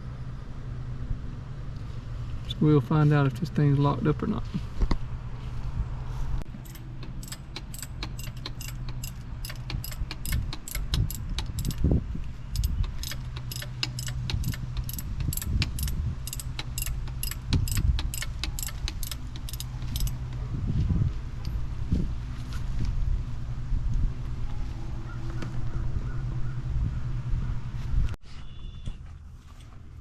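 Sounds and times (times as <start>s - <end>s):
ratchet wrench clicking: 6.6s - 11.9s, 12.5s - 20.3s.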